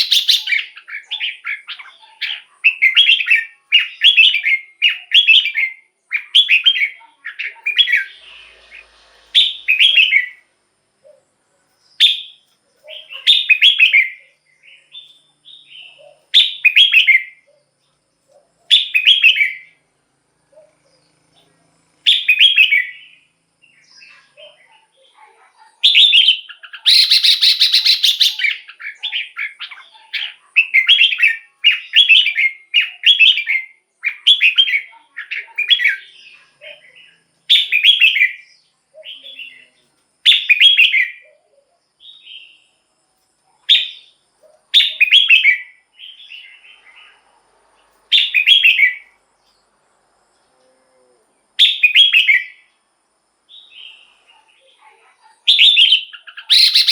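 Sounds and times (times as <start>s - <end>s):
bird singing whistled phrases: 0.0s - 8.7s, 9.4s - 10.4s, 12.0s - 17.5s, 18.7s - 19.8s, 22.1s - 23.2s, 25.8s - 36.1s, 37.5s - 39.7s, 40.3s - 41.3s, 44.8s - 46.6s, 48.2s - 49.1s, 51.6s - 52.6s, 55.5s - 56.9s.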